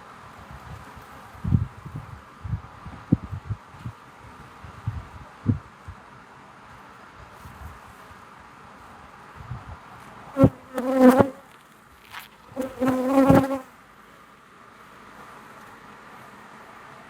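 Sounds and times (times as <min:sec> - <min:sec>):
hum of bee colony: 0:10.3 - 0:11.6, 0:12.2 - 0:13.8
bees buzzing past microphone: 0:10.4 - 0:11.4, 0:12.6 - 0:13.7.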